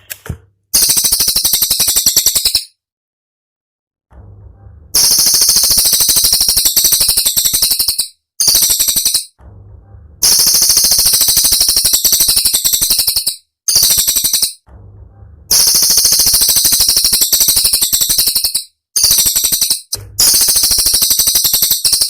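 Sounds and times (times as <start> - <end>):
bird rattling trills: 5.0 - 9.3, 15.5 - 22.0.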